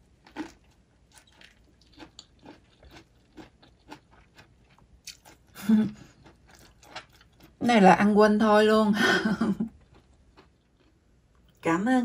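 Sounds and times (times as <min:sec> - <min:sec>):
person chewing crunchy food: 0:00.0 - 0:07.6, 0:09.7 - 0:11.1.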